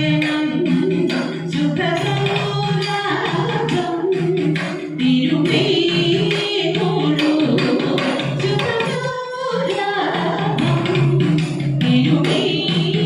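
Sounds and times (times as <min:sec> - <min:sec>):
rhythmic percussion beat: 0:00.0 - 0:13.0
group singing devotional song: 0:05.0 - 0:08.5, 0:11.9 - 0:13.0.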